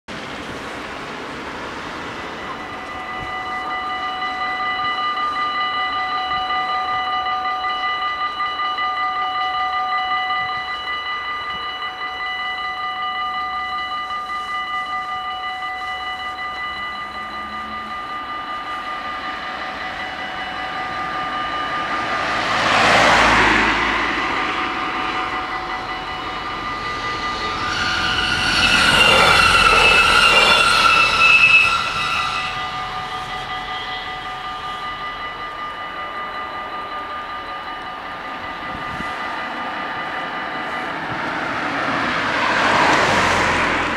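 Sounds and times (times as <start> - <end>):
diesel train passing: 0.1 - 43.9
level crossing bells ringing: 2.0 - 43.9
high squealing tones: 16.7 - 40.6.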